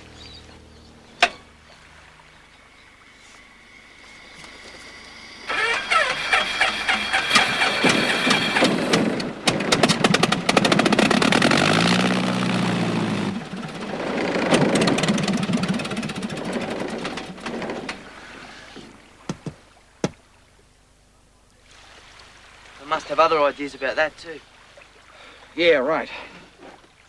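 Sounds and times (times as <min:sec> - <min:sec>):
aircraft engine cranking: 0:00.0 - 0:19.0.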